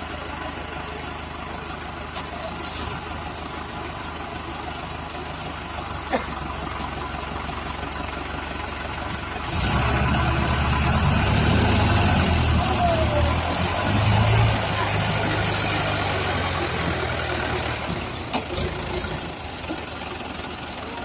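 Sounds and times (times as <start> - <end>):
diesel tractor engine idling: 0.0 - 21.0.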